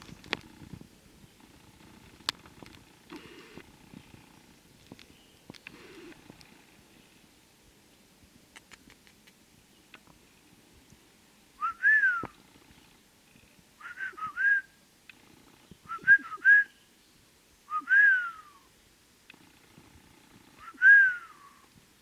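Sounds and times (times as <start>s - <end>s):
eagle whistled calls: 11.6s - 12.3s, 13.8s - 14.8s, 15.8s - 16.9s, 17.7s - 18.7s, 20.6s - 21.7s.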